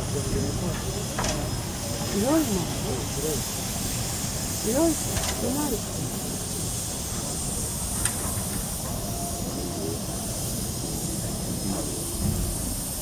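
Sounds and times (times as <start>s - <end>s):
steam hissing: 0.0s - 13.0s.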